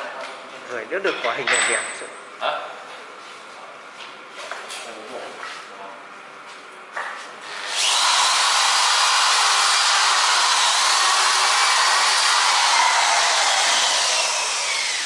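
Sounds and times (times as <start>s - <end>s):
electric drill whining: 7.4s - 15.0s.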